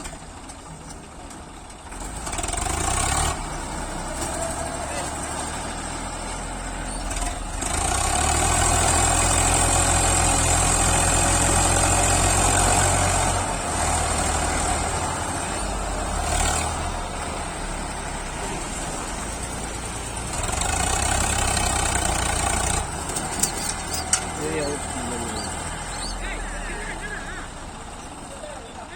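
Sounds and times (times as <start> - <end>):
tractor diesel engine revving: 0.0 - 28.9.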